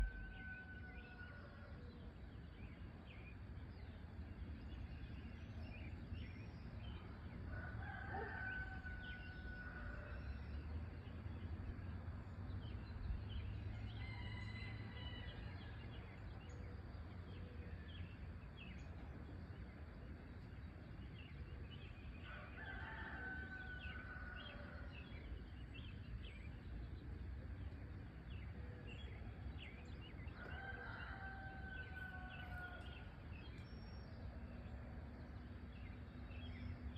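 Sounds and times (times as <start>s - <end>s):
low steady rumble: 0.0s - 1.2s, 23.4s - 30.4s
rooster crowing: 0.0s - 1.8s, 7.5s - 10.4s, 13.9s - 15.6s, 22.2s - 25.1s, 30.4s - 33.2s.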